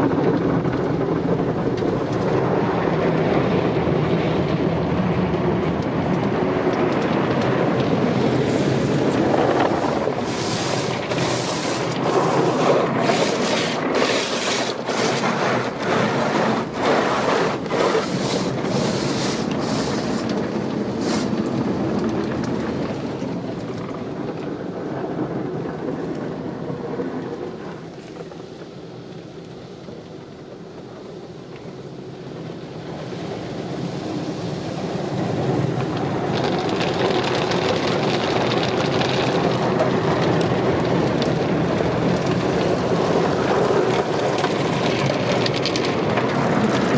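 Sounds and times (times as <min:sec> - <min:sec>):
car wash water and machinery: 0:00.0 - 0:46.9
car wash machinery thumping: 0:05.9 - 0:23.2.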